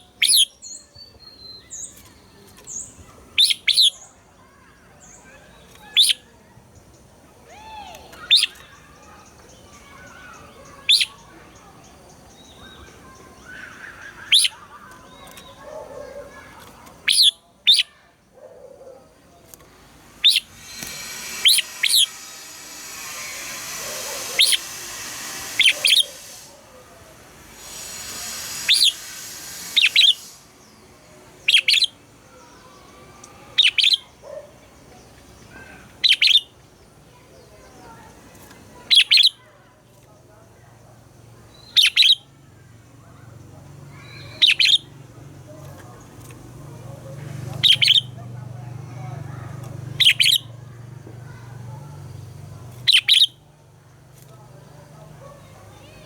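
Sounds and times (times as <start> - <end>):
bird calling in sharp high notes: 12.7 - 15.6, 16.3 - 18.0, 20.0 - 32.0, 38.9 - 39.4, 43.9 - 45.0, 47.5 - 50.6, 52.8 - 53.4
steady hiss: 19.6 - 33.9.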